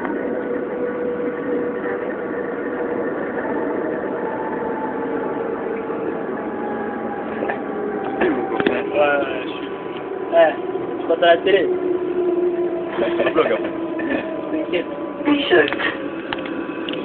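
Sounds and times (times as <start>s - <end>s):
tram running rumble: 0.0s - 17.0s.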